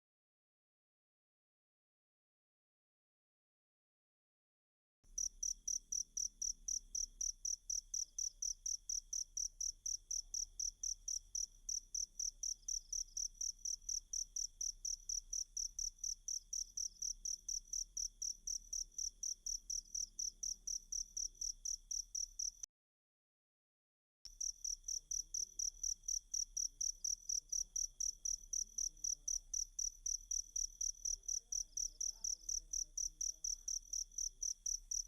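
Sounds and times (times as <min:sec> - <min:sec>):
cricket chirping: 0:05.2 - 0:22.7, 0:24.3 - 0:35.0.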